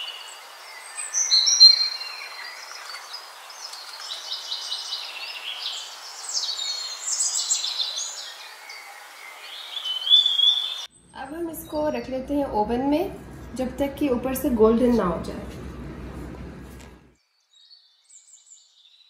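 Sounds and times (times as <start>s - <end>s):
songbirds chirping and whistling: 0.0s - 11.1s, 17.2s - 19.0s.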